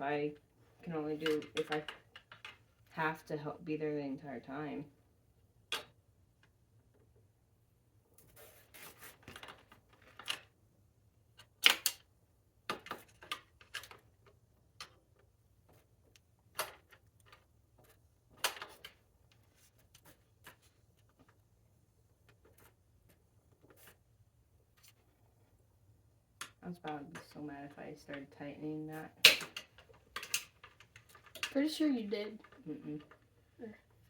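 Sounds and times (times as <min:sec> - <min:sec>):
tools and metal parts clattering: 0:29.5 - 0:31.6.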